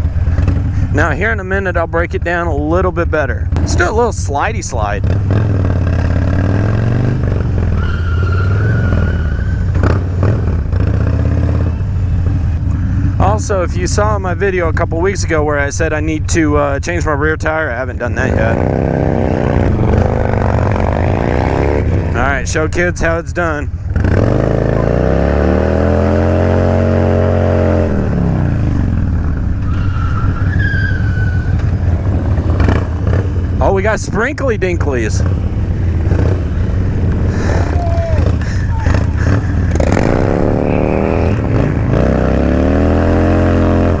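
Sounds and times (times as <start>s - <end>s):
motorcycle engine revving: 0.0s - 2.8s, 3.4s - 14.5s, 17.8s - 44.0s
rush of motorcycle moving: 0.0s - 44.0s
tyre squealing: 7.6s - 10.3s, 29.4s - 33.7s, 35.6s - 44.0s.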